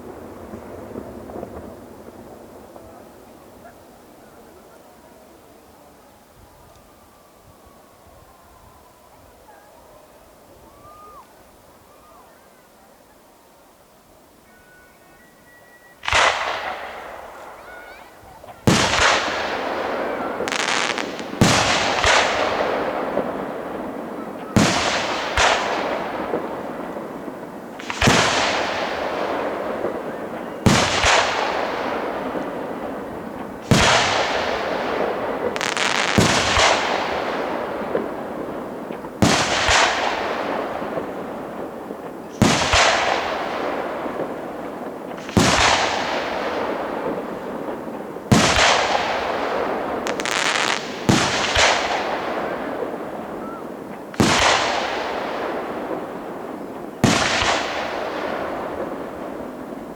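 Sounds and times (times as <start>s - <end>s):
hissing firework tails: 13.7s - 59.9s
firework shells bursting: 18.6s - 23.6s, 24.4s - 53.0s.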